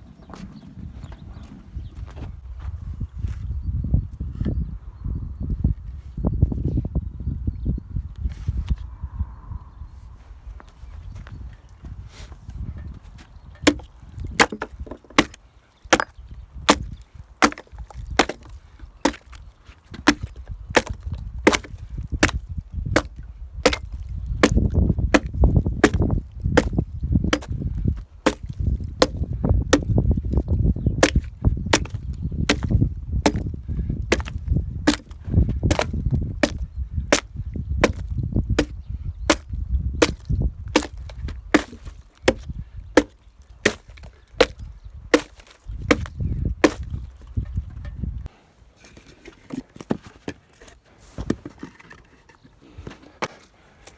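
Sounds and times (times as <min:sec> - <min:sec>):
hand tool striking wood: 0:13.6 - 0:19.4, 0:20.0 - 0:22.4, 0:23.0 - 0:27.6, 0:28.2 - 0:48.0.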